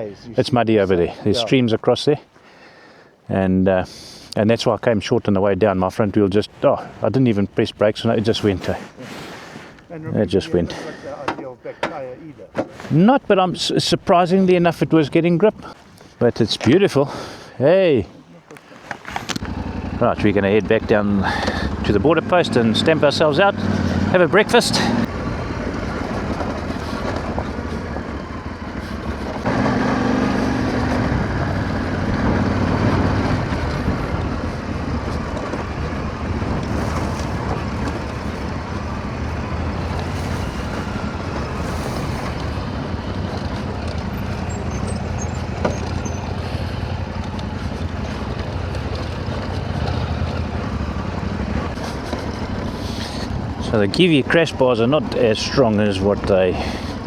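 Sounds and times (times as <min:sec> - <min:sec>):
motorcycle engine drone: 0:19.2 - 0:57.0.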